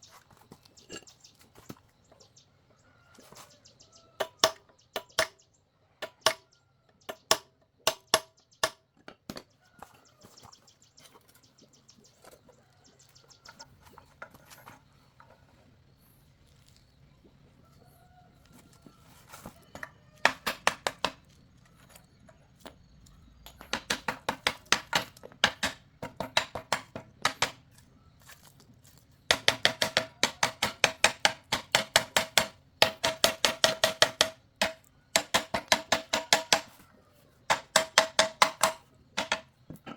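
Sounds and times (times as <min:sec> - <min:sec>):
rooster crowing faintly: 0:02.7 - 0:04.4, 0:09.4 - 0:10.7, 0:17.1 - 0:20.7.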